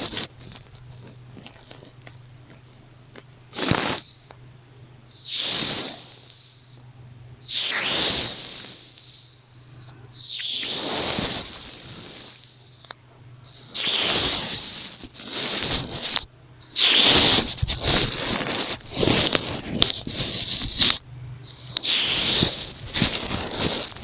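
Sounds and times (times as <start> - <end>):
brush swishing across microphone: 10.2 - 12.4, 13.6 - 24.0.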